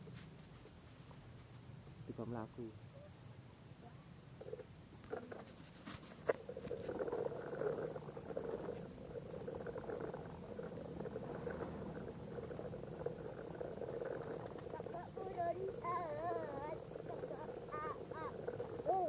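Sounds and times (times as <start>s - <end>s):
toy truck electric motor whirring: 14.0s - 19.0s.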